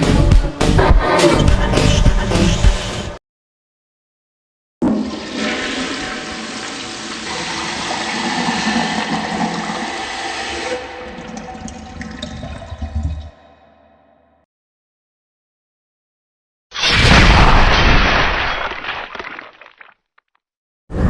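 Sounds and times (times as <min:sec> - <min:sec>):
toilet flushing: 0:04.8 - 0:13.4.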